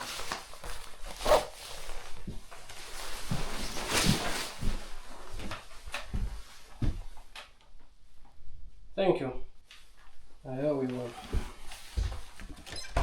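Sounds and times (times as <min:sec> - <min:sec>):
clothing and gear rustling: 0:00.0 - 0:07.3, 0:09.8 - 0:13.0
zipper rasps: 0:01.1 - 0:02.0.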